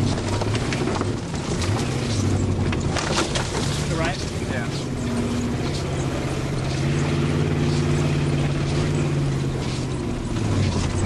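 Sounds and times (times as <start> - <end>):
branches scraping against car: 0.0 - 11.0
car engine running under load: 0.0 - 11.0.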